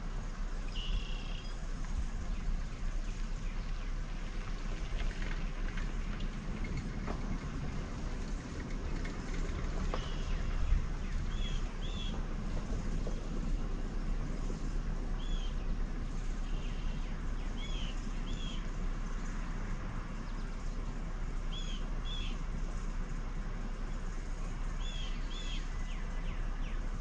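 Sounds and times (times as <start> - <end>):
steady low background noise: 0.0 - 27.0
bird chirps: 0.7 - 1.6, 16.4 - 18.8, 21.5 - 22.4, 24.8 - 26.9.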